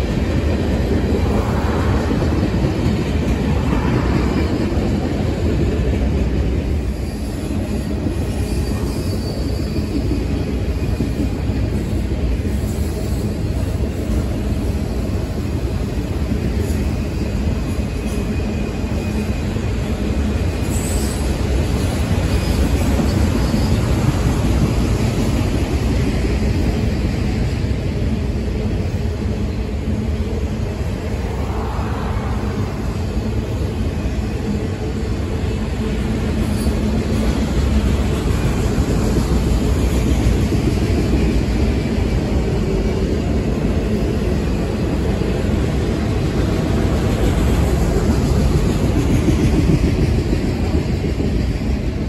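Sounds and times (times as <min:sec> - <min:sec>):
freight train rolling past: 0:00.0 - 0:52.0
steel wheels clattering on rail: 0:02.1 - 0:30.4.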